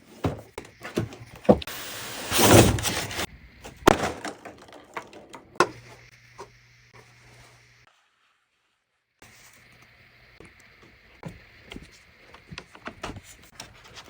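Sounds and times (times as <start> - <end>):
cardboard sliding scrape: 1.6 - 3.3.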